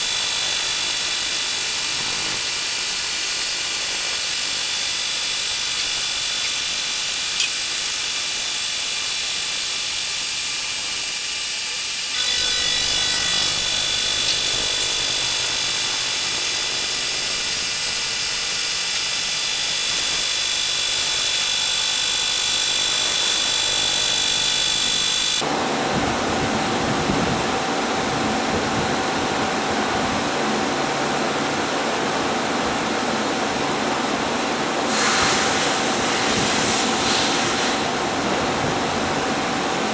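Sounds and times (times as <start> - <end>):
milling machine cutting metal: 0.0 - 25.5
high spindle whine: 0.0 - 25.7.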